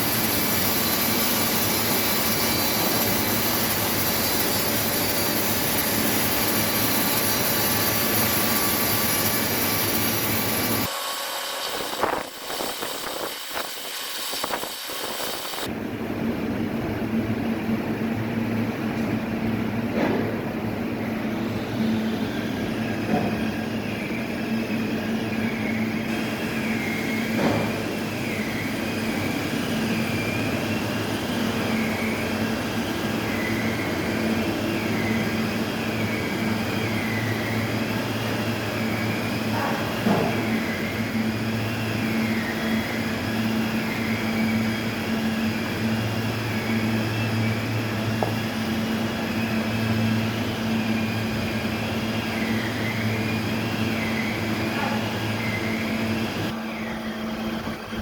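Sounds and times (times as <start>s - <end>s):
wavering high whine: 0.0s - 19.8s
sawmill machinery drone: 0.0s - 58.0s.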